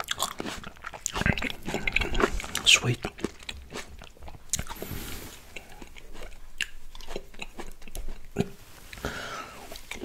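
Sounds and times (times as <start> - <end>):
chewing grapes: 0.0 - 10.0
sharp mouth clicks: 5.5 - 8.6.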